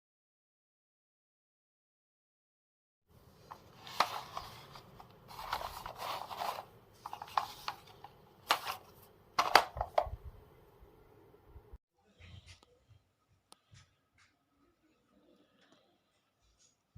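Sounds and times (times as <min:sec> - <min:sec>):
rustling: 0:03.4 - 0:09.1.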